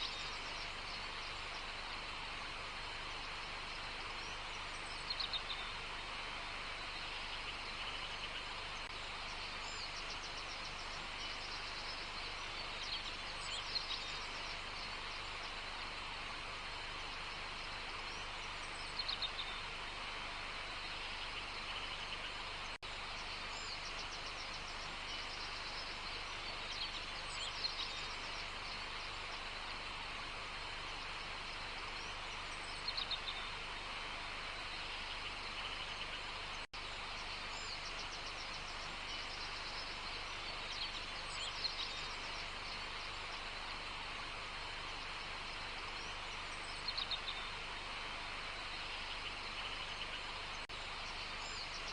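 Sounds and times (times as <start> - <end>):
birds chirping: 0.0 - 51.9
steady hiss: 0.0 - 51.9.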